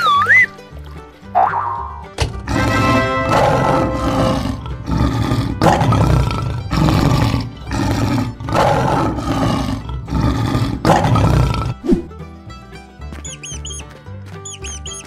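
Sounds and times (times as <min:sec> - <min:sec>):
lion roaring: 0:02.4 - 0:11.8.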